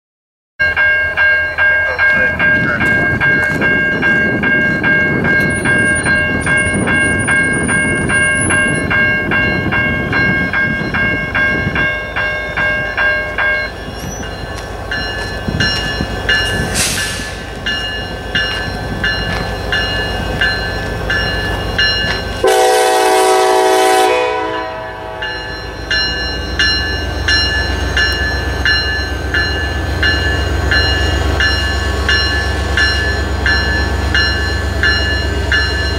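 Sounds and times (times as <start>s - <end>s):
locomotive bell ringing: 0.6s - 35.9s
locomotive horn blast: 22.4s - 25.4s.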